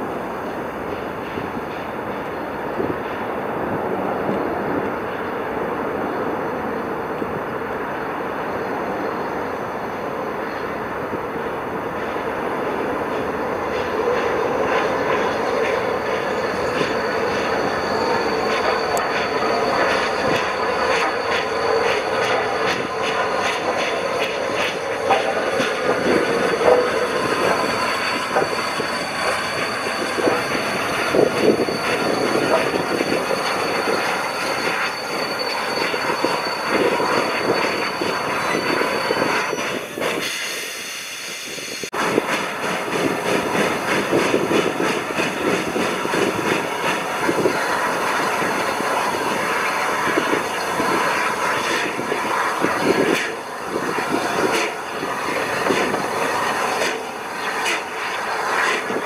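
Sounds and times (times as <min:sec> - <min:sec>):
train wheels on track: 0:00.0 - 0:59.0
thin high squeal: 0:15.3 - 0:24.2, 0:24.8 - 0:40.5.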